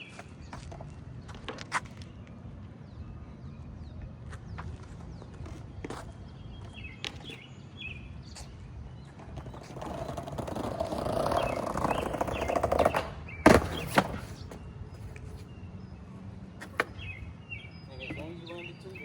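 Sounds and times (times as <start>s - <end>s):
skateboard wheels rolling on pavement: 0.0s - 19.0s
skateboard clacking: 9.2s - 14.6s, 16.6s - 17.0s.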